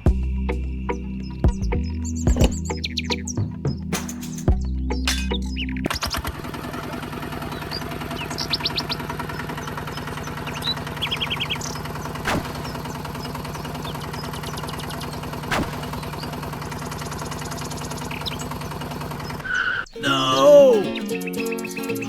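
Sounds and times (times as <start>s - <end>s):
bird chirps: 0.8s - 6.2s, 7.2s - 22.0s
small motor humming: 6.1s - 19.9s
sharp clicks: 8.3s - 18.6s.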